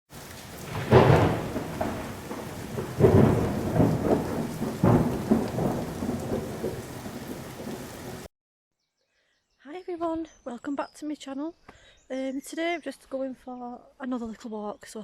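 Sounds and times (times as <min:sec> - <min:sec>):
rain hissing: 0:00.1 - 0:08.3
thunder rumbling: 0:00.1 - 0:08.3.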